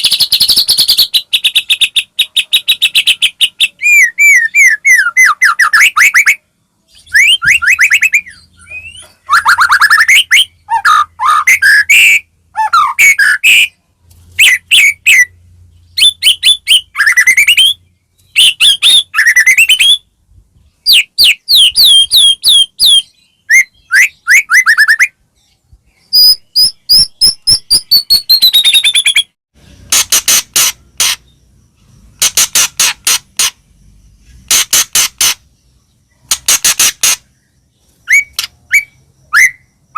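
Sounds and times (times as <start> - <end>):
bird singing varied song: 0.0 - 29.9, 30.6 - 39.9
harsh clicking rattles: 29.8 - 31.3, 36.2 - 37.3.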